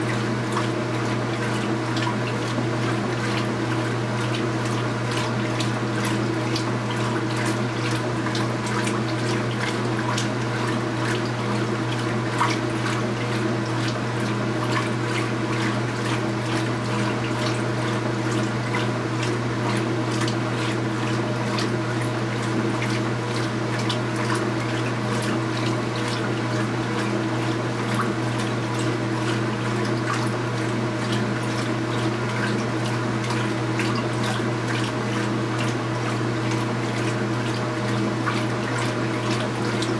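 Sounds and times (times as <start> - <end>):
washing machine motor hum: 0.0 - 39.9
water splashing and sloshing: 0.0 - 39.9.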